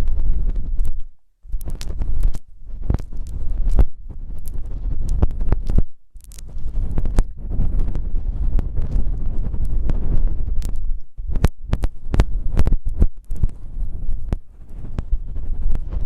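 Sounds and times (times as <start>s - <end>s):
microphone rubbing and scratching: 0.0s - 16.0s.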